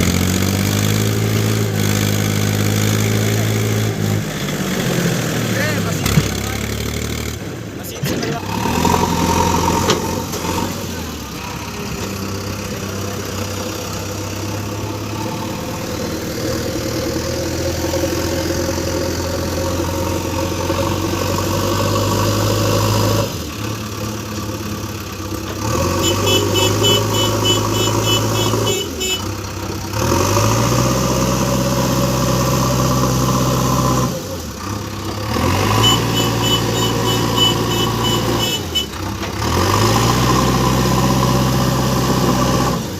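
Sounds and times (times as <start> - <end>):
heavy diesel engine revving: 0.0 - 42.9
rapid high-pitched beeping: 26.0 - 29.2, 35.8 - 38.9.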